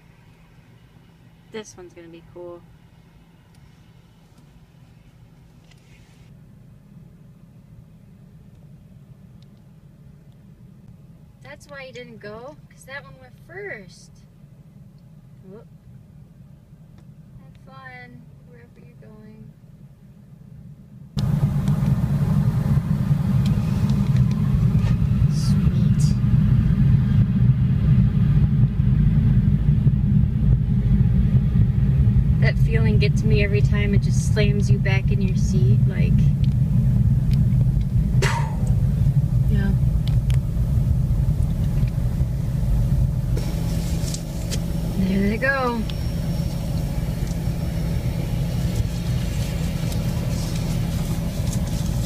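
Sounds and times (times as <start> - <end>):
car rumble from inside: 21.2 - 52.0.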